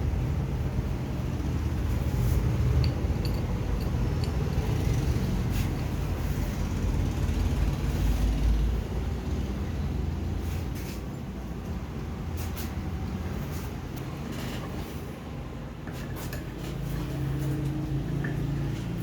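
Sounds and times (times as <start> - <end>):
low engine rumble: 0.0 - 10.4.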